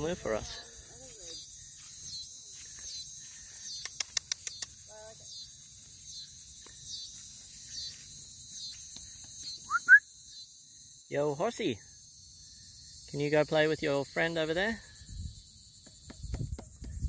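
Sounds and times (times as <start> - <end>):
insects trilling: 0.0 - 17.0
sharp clicks: 3.8 - 4.8.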